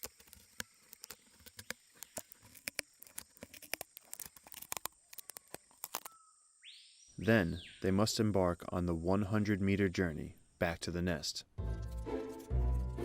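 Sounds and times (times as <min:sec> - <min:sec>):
ants snipping leaves: 0:00.0 - 0:06.1.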